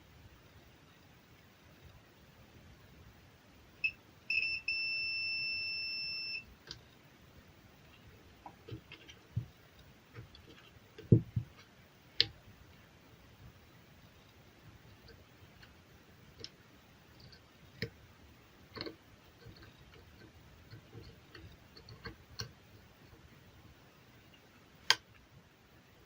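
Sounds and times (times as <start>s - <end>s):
multimeter continuity beeps: 3.8s - 6.6s.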